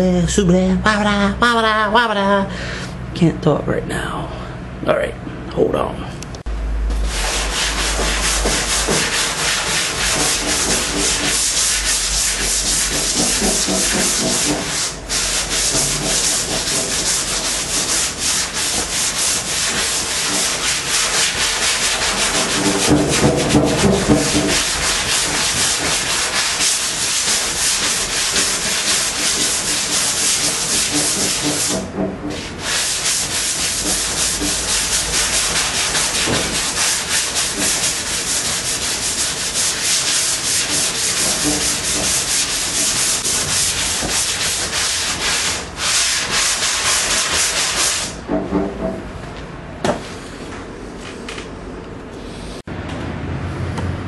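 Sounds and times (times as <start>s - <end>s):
sandpaper rubbing on body filler: 7.0s - 48.2s.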